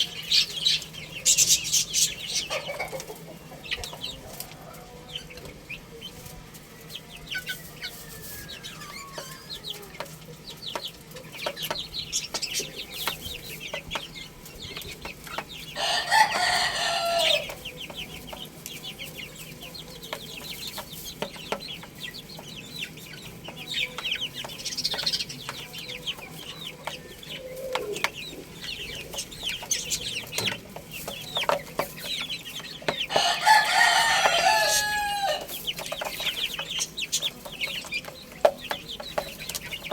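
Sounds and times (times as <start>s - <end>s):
chickens clucking: 0.0s - 39.9s
chicks peeping: 0.0s - 39.9s
rooster crowing: 7.8s - 9.5s, 15.8s - 17.6s, 33.1s - 35.6s.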